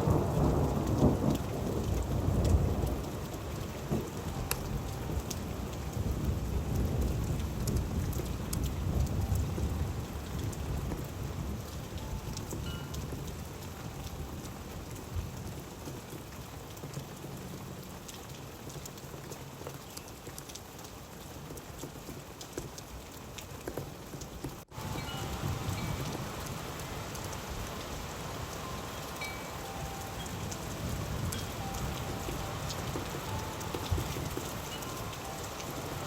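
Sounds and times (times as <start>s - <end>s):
thunder rumble: 0.0s - 16.2s, 24.7s - 36.0s
rain pattering: 0.0s - 36.0s.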